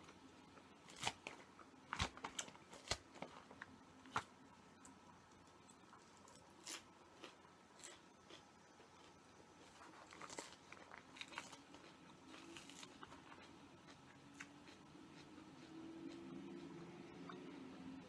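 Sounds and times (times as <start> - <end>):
soft chewing: 0.0 - 18.0.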